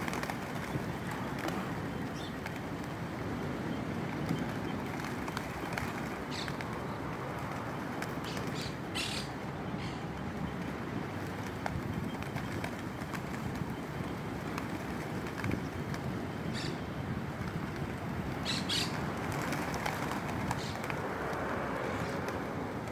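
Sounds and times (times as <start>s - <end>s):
wing flutters: 0.0s - 3.2s, 4.0s - 9.3s, 10.5s - 22.9s
wind noise: 0.0s - 22.9s.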